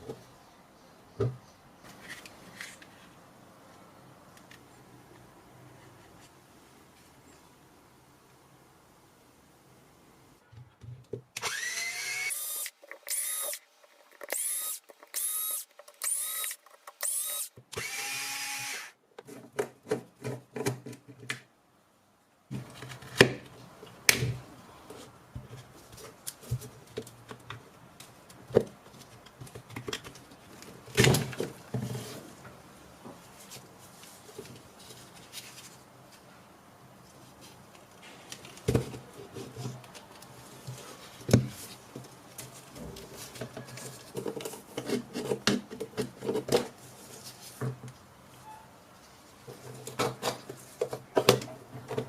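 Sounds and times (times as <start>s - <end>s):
electric screwdriver motor spinning: 11.4s - 13.6s, 14.3s - 18.9s.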